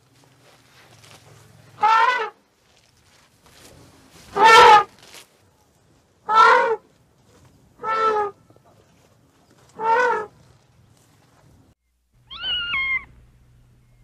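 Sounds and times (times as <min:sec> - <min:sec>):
elephants trumpeting: 0:01.3 - 0:02.4, 0:04.3 - 0:04.9, 0:06.3 - 0:06.8, 0:07.8 - 0:08.4, 0:09.7 - 0:10.3.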